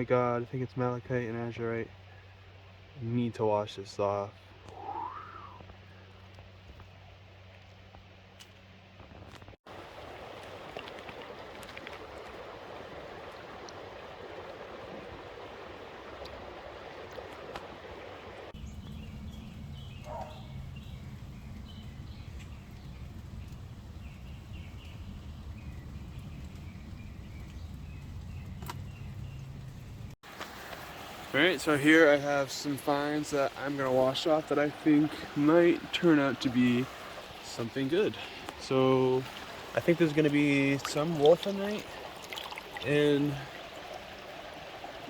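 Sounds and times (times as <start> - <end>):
stream water running: 9.4 - 45.0
birds chirping: 18.3 - 30.2, 31.0 - 45.0
low steady hum: 18.6 - 30.2.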